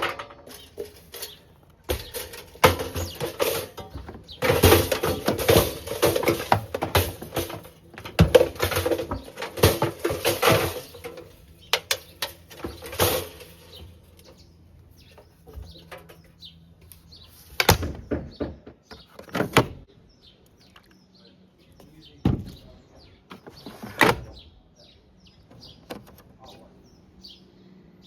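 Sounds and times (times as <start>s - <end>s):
knocks and clunks of handled objects: 0.0s - 19.9s.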